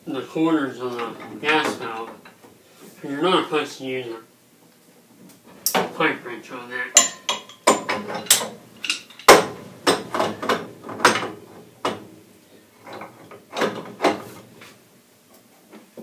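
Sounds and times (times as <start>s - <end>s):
metal wrench clanking on valve: 7.0s - 9.3s.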